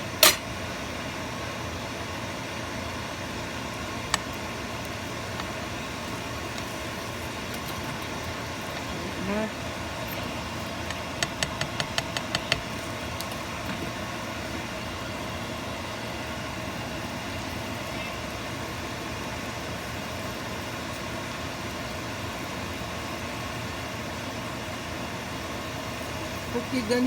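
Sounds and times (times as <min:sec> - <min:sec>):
steady mechanical hum: 0:00.0 - 0:27.0
sharp taps: 0:10.9 - 0:12.7.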